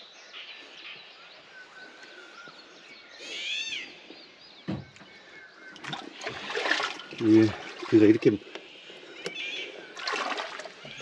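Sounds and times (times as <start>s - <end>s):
birds chirping: 0.0s - 11.0s
short thump: 4.7s - 5.0s.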